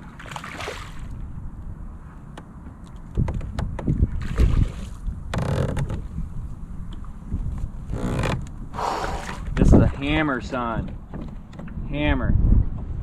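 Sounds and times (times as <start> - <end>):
wind rumbling on microphone: 0.0 - 13.0
knocks and bumps against kayak: 2.4 - 6.1, 9.3 - 13.0.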